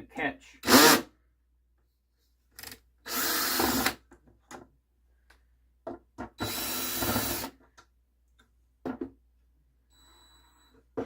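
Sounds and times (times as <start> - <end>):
power drill running: 0.6 - 1.0, 3.1 - 4.0, 6.4 - 7.5.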